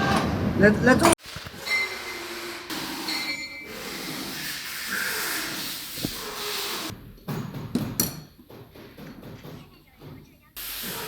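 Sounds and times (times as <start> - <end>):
hissing workshop machinery: 1.0 - 6.9, 10.5 - 11.0.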